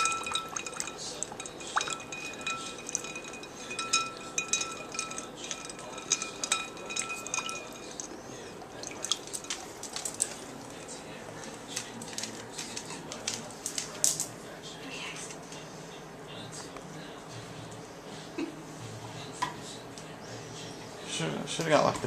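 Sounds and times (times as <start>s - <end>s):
ice clinking against bowl: 0.0s - 10.8s.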